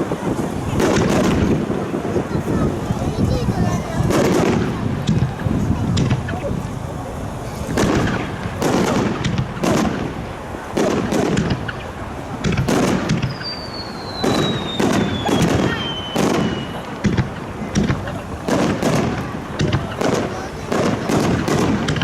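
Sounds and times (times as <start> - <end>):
fireworks bangs: 0.0 - 22.0
falling firework whistle: 13.1 - 17.0.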